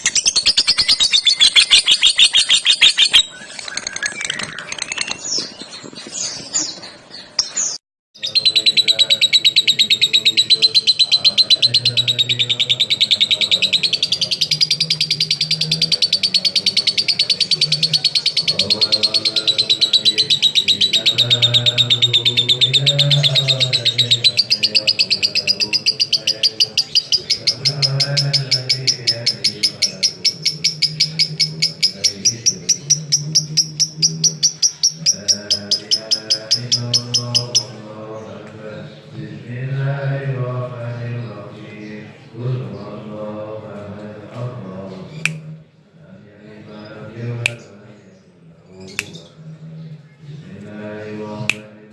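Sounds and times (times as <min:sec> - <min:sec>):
lovebird chattering trill: 0:00.0 - 0:05.9, 0:07.4 - 0:37.8.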